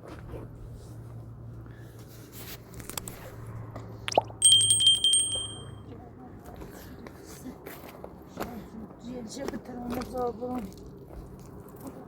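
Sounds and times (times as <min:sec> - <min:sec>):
bell ringing with rattle: 0:04.4 - 0:05.8.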